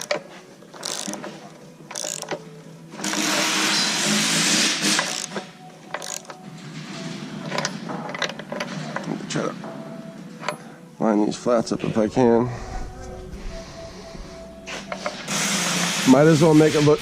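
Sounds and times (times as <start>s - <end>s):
loud rasping sound: 3.1s - 5.4s
metal clicks and knocks: 7.5s - 9.2s.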